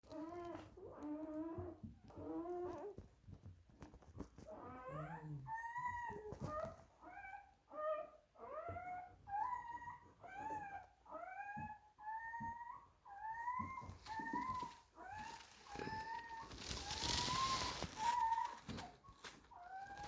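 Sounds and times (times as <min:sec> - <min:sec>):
dog whimpering and crying: 0:04.5 - 0:20.0.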